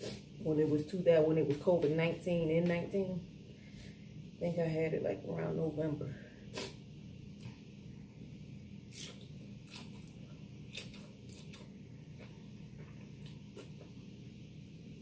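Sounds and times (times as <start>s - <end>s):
person chewing food: 8.9s - 14.1s.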